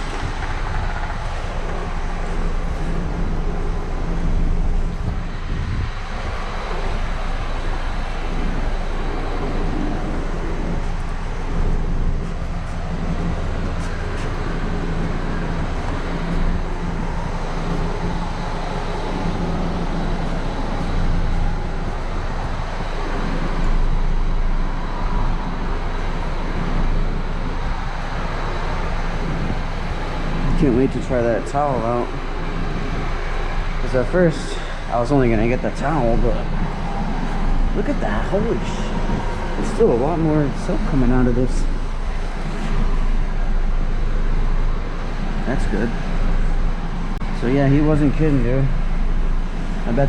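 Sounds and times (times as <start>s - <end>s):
car wash equipment hum: 0.0s - 50.0s
continuous spray hiss: 0.0s - 50.0s.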